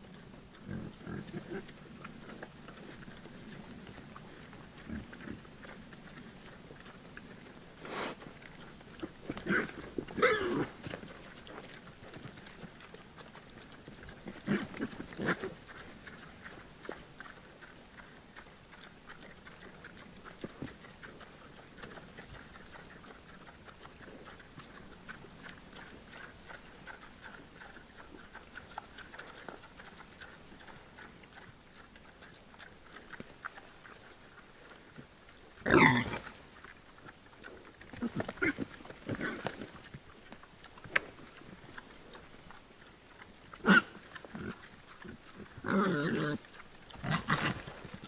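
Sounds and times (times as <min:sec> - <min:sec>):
wild boar grunting: 0:00.5 - 0:17.7, 0:35.6 - 0:36.5, 0:37.4 - 0:39.9, 0:43.5 - 0:48.0.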